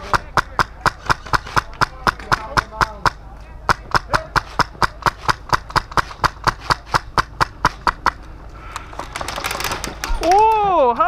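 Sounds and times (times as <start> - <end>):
rhythmic sharp clicks: 0.1 - 8.3.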